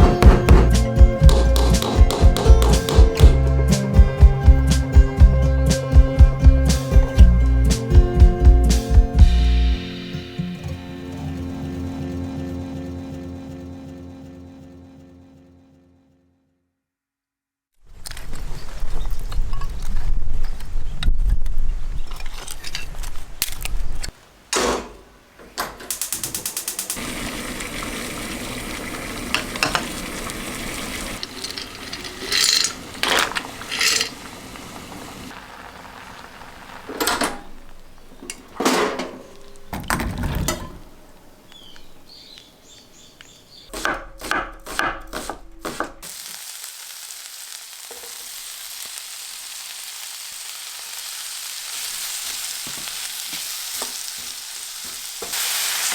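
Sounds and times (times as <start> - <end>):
food sizzling in a pan: 26.0 - 38.5, 46.0 - 55.9
utensils clinking on cookware: 29.1 - 35.1, 37.0 - 40.9.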